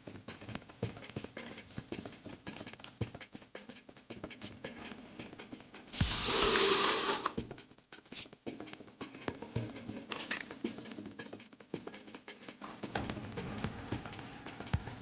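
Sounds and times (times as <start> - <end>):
burst of hiss: 6.0 - 7.4.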